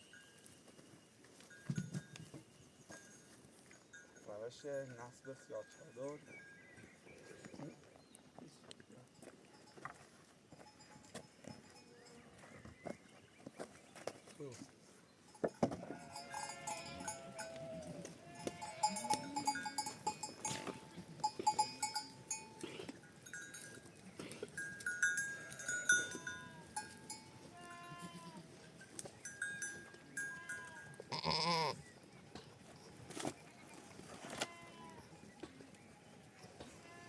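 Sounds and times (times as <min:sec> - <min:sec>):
livestock bells clinking: 0:00.0 - 0:08.1, 0:08.9 - 0:12.7, 0:15.1 - 0:31.5
sheep and goats bleating: 0:15.8 - 0:23.1, 0:24.2 - 0:28.7, 0:29.6 - 0:31.9, 0:34.2 - 0:35.1, 0:36.2 - 0:37.0.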